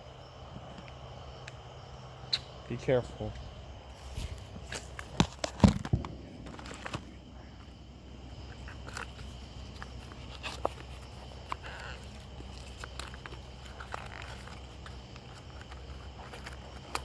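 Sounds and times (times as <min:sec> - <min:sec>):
small firework popping: 0:04.2 - 0:07.3.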